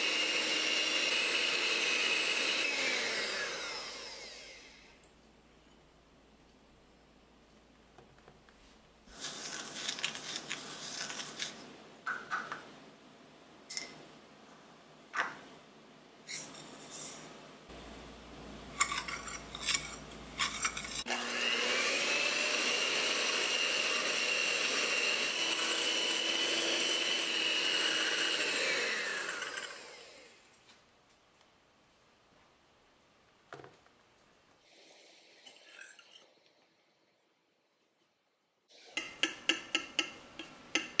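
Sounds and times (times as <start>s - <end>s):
electric mixer whining: 0.0s - 4.9s, 20.7s - 30.4s
whisk scraping ceramic bowl: 18.8s - 21.1s.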